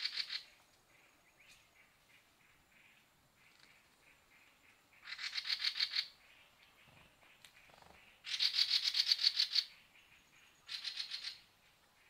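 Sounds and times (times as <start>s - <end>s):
bird rattling call: 7.6s - 9.7s.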